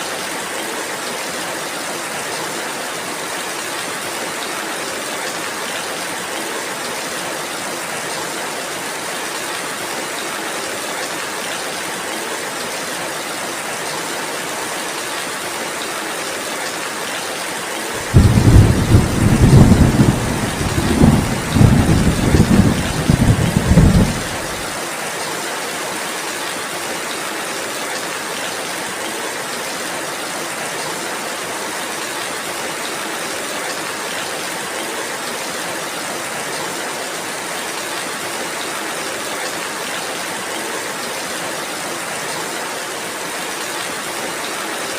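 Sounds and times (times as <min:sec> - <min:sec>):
steady rainfall: 0:00.0 - 0:44.9
thunder rumbling: 0:18.0 - 0:24.7.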